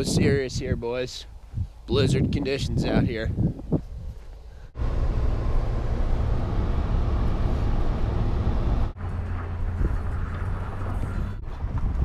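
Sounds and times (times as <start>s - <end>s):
truck engine rumbling: 4.7s - 12.0s.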